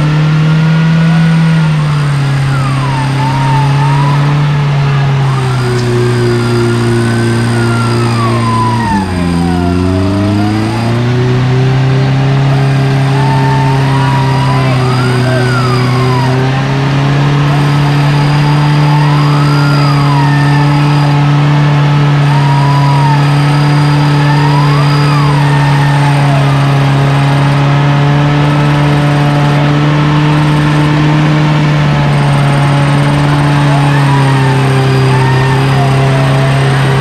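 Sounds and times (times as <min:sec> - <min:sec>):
vehicle engine running under load: 0:00.0 - 0:37.0
high whine: 0:01.0 - 0:27.8.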